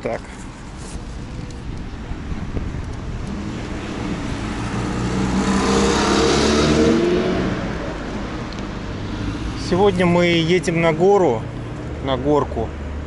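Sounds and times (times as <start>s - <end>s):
low road noise: 0.0s - 13.0s
car passing by: 3.3s - 7.9s.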